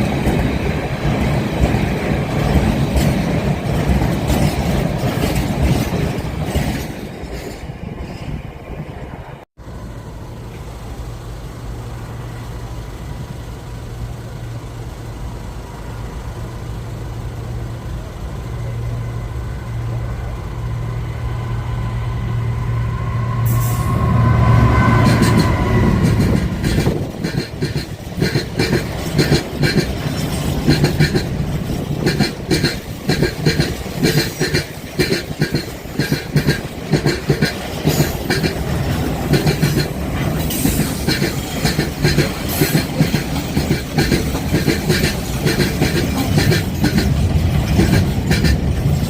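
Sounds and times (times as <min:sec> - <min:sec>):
train drone: 0:00.0 - 0:49.0
train passing: 0:00.0 - 0:49.0
high wheel squeal: 0:21.3 - 0:27.3.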